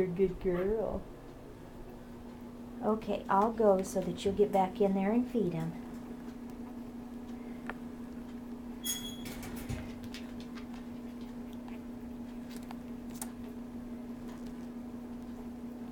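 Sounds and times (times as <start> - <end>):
steady low hum: 0.0 - 15.9
puppies scratching and clicking: 8.2 - 15.6.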